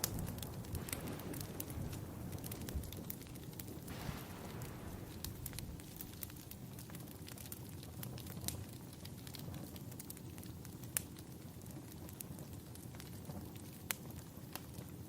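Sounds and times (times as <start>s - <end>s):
low steady rumble: 0.0s - 6.8s
wood fire crackling and popping: 0.0s - 15.0s.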